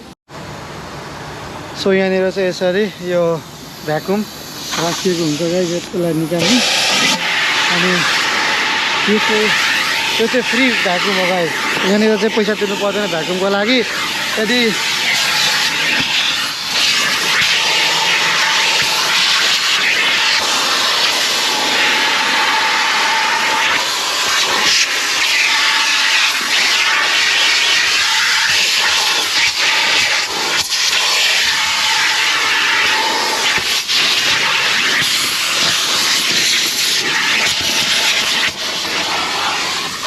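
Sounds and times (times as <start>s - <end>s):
car wash vacuum running: 0.0s - 40.0s.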